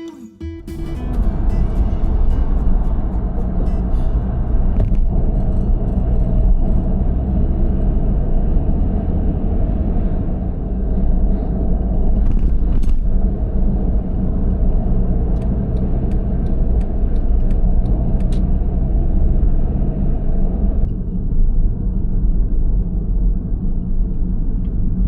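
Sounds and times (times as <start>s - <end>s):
car engine and road noise: 0.6s - 25.0s.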